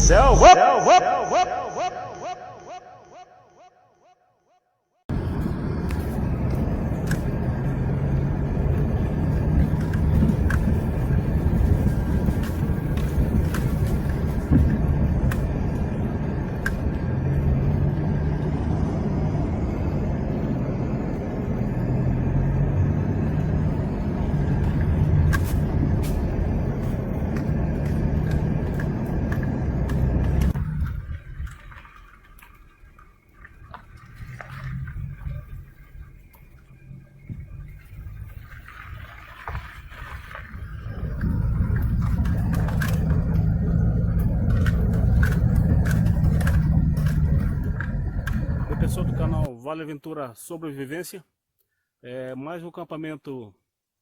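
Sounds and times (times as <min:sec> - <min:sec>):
vehicle engine running: 0:00.0 - 0:00.7, 0:05.1 - 0:49.5
road noise: 0:00.0 - 0:03.5, 0:05.1 - 0:49.5
rattles and clicks: 0:05.1 - 0:17.4, 0:23.4 - 0:49.5.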